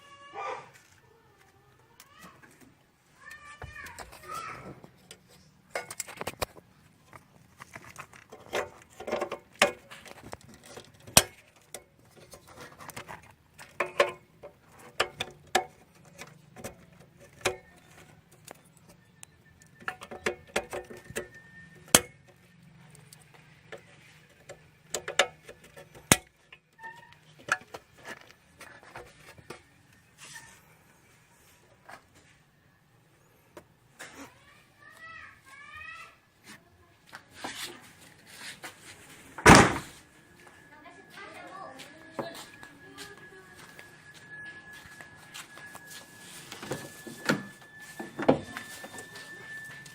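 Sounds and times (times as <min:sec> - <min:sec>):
hard objects clinking and knocking: 0:03.7 - 0:22.3.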